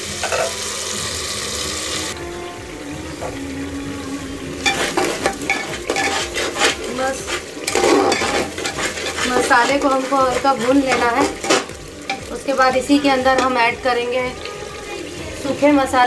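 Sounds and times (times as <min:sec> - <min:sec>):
masala paste sizzling in hot oil: 0:00.0 - 0:16.0
spatula scraping a pot: 0:04.6 - 0:12.2.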